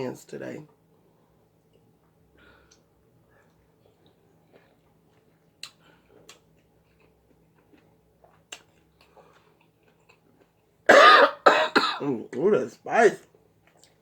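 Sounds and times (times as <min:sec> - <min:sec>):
faint eating clicks and cracks: 0:01.6 - 0:10.8, 0:13.2 - 0:14.0.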